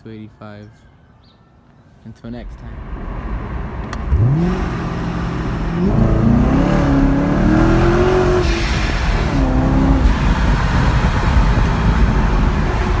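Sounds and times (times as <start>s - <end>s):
car engine revving: 2.3s - 13.0s.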